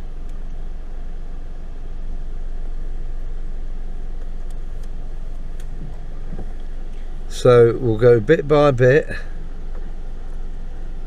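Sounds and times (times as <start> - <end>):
car engine and tyres rumbling: 0.0 - 11.0
faint ticks: 0.2 - 0.4, 4.2 - 7.1.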